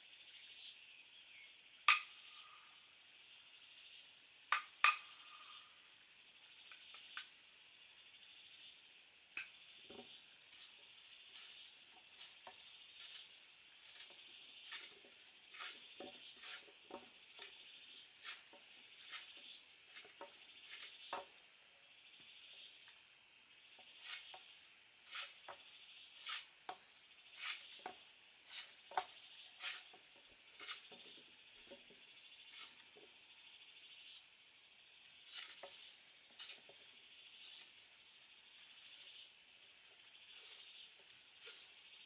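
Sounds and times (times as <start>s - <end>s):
insects chirring: 0.0s - 42.0s
hand tool strokes on wood: 10.6s - 21.2s, 27.3s - 30.0s.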